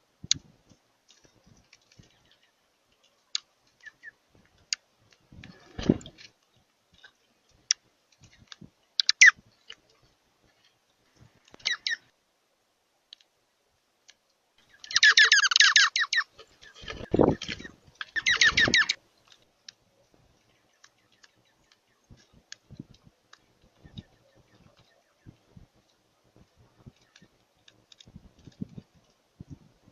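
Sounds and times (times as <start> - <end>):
birds chirping: 1.2 - 4.8, 5.4 - 10.1, 10.7 - 12.1, 14.6 - 29.9
dull low thumps: 22.1 - 27.0, 28.1 - 29.9.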